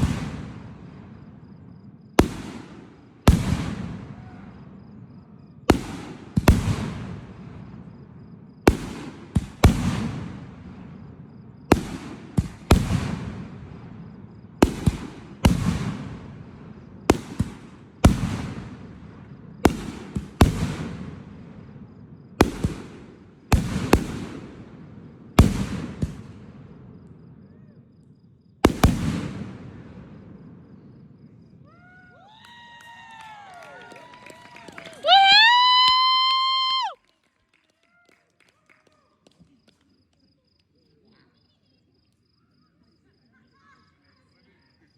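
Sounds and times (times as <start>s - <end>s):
fireworks bangs with echo: 0.0s - 31.7s.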